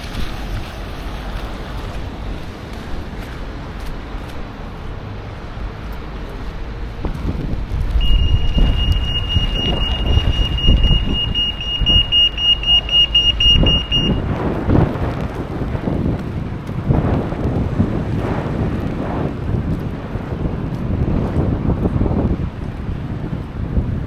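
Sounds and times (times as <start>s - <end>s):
low rumble: 0.0s - 24.0s
wind buffeting microphone: 0.0s - 24.0s
high-pitched tone pulsing: 8.0s - 14.3s.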